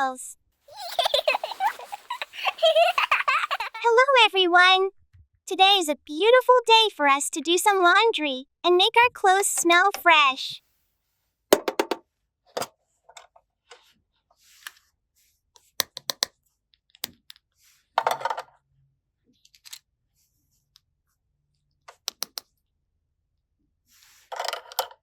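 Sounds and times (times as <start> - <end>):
rustle of handling: 1.1 - 3.2
toy pieces clicking and tapping: 15.6 - 16.3, 22.0 - 22.5.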